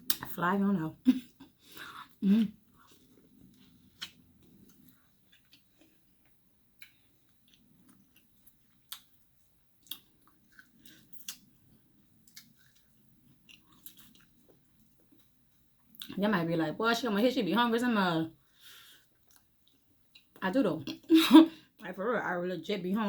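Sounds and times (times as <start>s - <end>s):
person chewing food: 1.8s - 16.1s, 19.0s - 20.3s.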